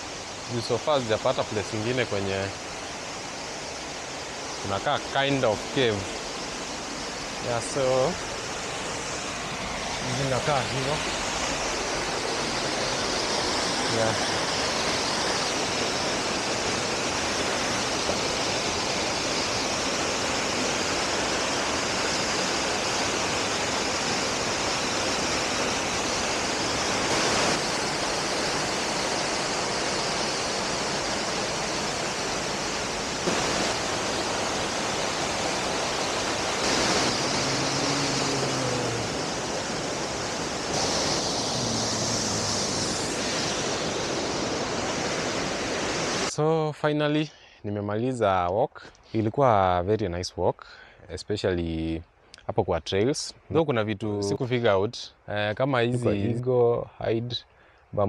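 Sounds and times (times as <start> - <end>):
waterfall rushing: 0.0 - 46.4.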